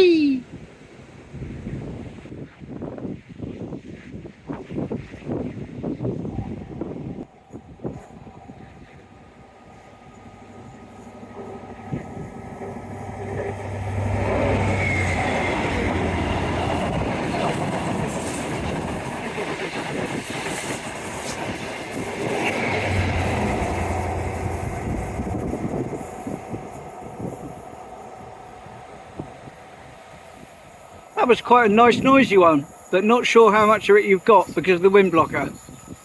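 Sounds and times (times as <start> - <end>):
diesel train passing: 6.4 - 36.0
train wheels on rails: 7.4 - 36.0.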